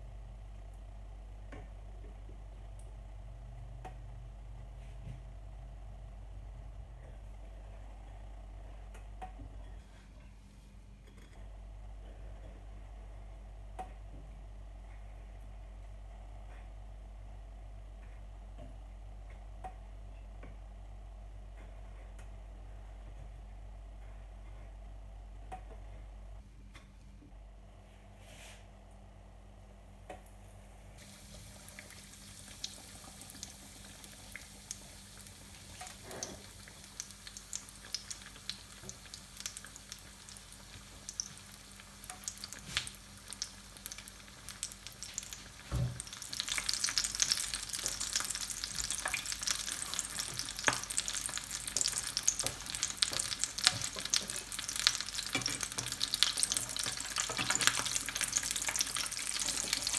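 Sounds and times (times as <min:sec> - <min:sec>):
oil sizzling and popping: 0:31.0 - 0:59.9.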